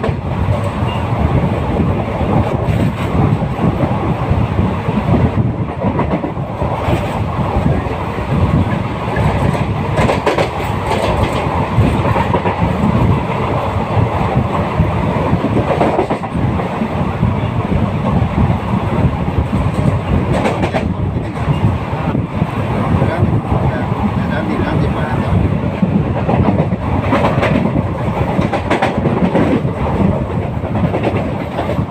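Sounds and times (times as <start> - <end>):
train wheels rumbling: 0.0 - 31.9
wheels clacking over rail joints: 9.1 - 12.9.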